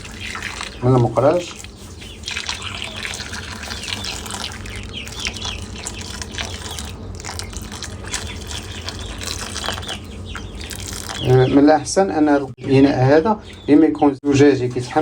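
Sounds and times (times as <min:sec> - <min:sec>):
boiling water pouring into bowl: 0:00.0 - 0:01.6, 0:02.3 - 0:04.7.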